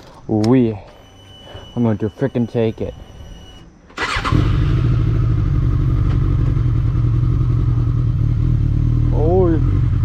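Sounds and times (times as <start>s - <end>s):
motorcycle engine revving high: 4.0s - 10.0s.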